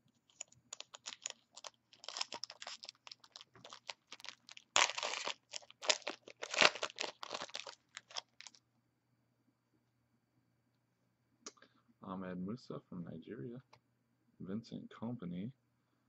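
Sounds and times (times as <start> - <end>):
foil wrapper crinkling and tearing: 0.2 - 8.6.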